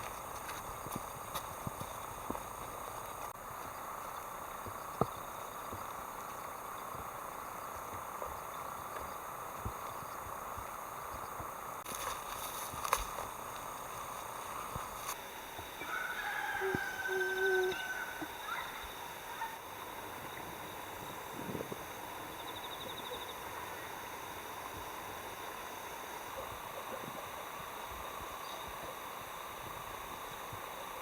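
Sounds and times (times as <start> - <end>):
faint background hum: 0.0 - 31.0
rooster crowing: 15.8 - 18.7.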